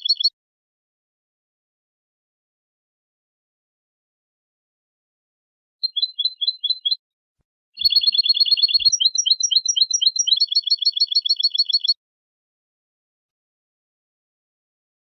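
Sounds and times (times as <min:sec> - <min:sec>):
finch song with trills: 0:00.0 - 0:00.4, 0:05.8 - 0:07.0, 0:07.8 - 0:12.0.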